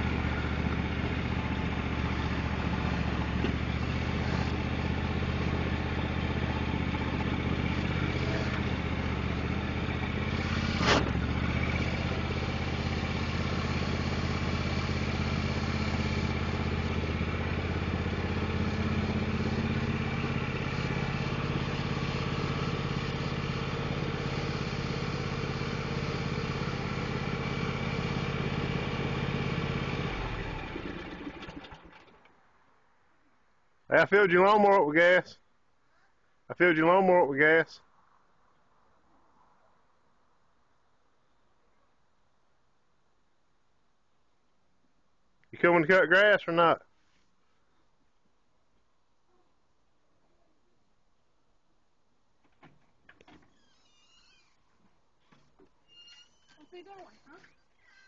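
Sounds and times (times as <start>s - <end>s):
riding mower engine running: 0.0s - 32.4s.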